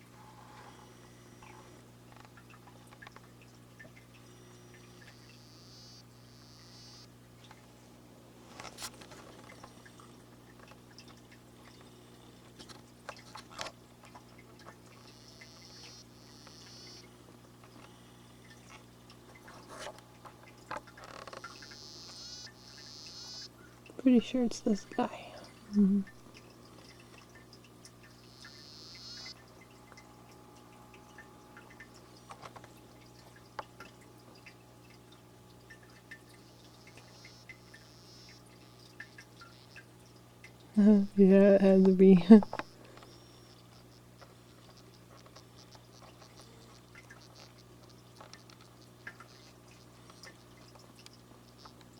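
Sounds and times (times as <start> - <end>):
faint water drips: 0.0 - 51.9
steady low hum: 0.0 - 51.9
frogs clicking: 1.1 - 7.6, 9.5 - 19.5, 20.2 - 51.9
small scattered clicks: 2.1 - 5.4, 12.5 - 23.5, 42.5 - 51.9
high buzzing frog trill: 4.2 - 7.2, 14.8 - 18.9, 20.7 - 26.4, 27.9 - 32.0, 36.3 - 51.8.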